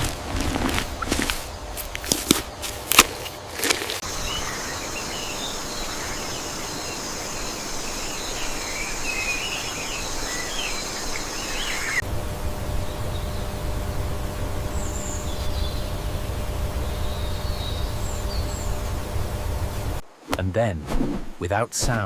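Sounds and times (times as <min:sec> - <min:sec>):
insects droning: 0:00.0 - 0:20.2
bird chirps: 0:04.0 - 0:12.0, 0:16.8 - 0:18.8.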